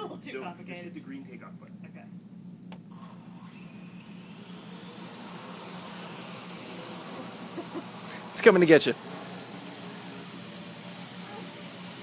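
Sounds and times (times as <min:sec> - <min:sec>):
drone rotors whirring: 0:02.9 - 0:12.0.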